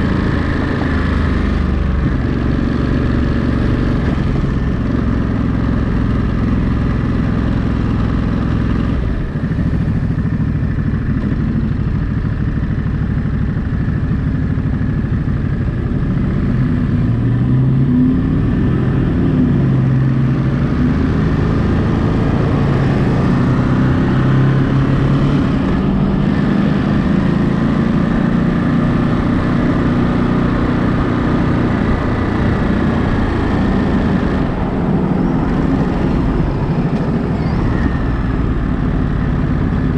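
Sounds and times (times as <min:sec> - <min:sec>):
motorcycle engine accelerating: 0:00.0 - 0:39.9
road and wind noise: 0:00.0 - 0:39.9.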